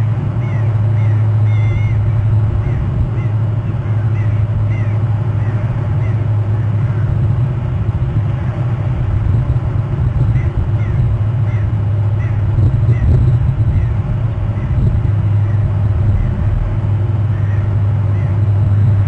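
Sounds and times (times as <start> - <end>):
steady low rumble: 0.0 - 19.0
bird call: 0.4 - 6.8, 17.3 - 18.4.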